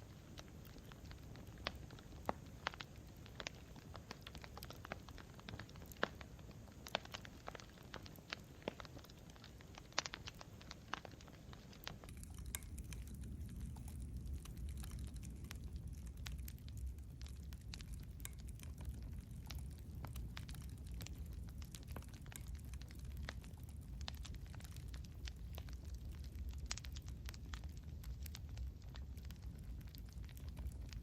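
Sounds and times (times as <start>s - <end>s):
campfire crackling and popping: 0.0s - 31.0s
low steady rumble: 11.8s - 31.0s.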